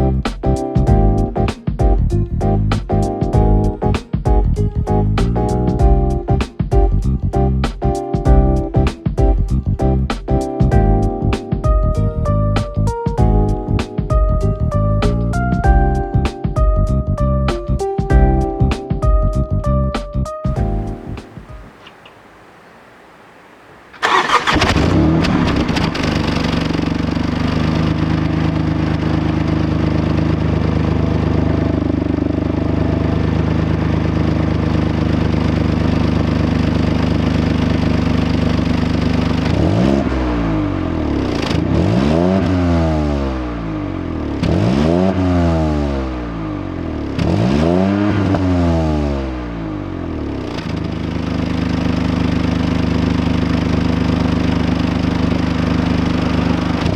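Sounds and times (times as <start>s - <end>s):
car engine starting and idling: 20.5s - 56.9s
engine revving: 23.9s - 56.9s.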